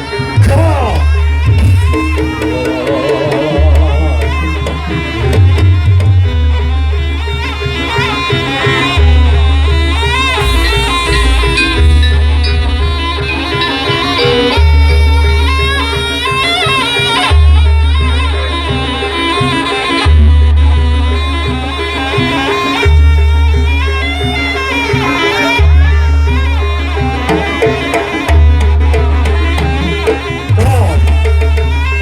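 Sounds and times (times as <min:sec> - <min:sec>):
drumming: 0:00.0 - 0:06.5, 0:10.0 - 0:15.2, 0:27.0 - 0:32.0
reedy shawm melody: 0:00.0 - 0:32.0
deep low strokes: 0:10.4 - 0:13.8.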